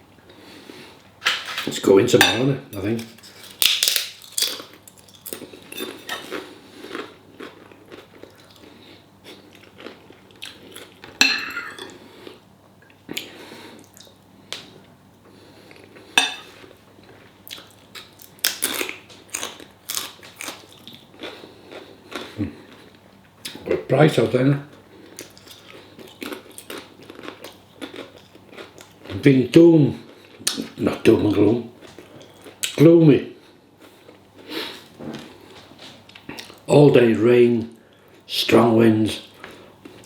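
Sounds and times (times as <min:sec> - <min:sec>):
chewing: 0:04.3 - 0:12.4, 0:15.6 - 0:23.6, 0:25.0 - 0:29.2
cutlery clinking on a plate: 0:11.2 - 0:11.9, 0:16.2 - 0:16.5.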